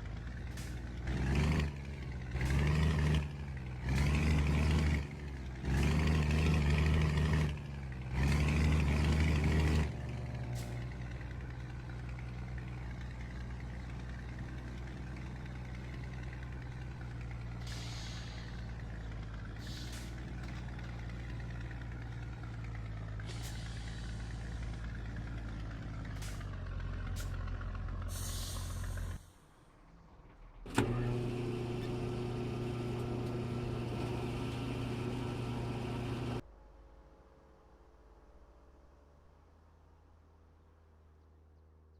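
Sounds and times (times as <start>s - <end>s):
truck diesel engine running: 0.0s - 29.4s, 30.7s - 36.4s
air hissing: 28.1s - 29.3s.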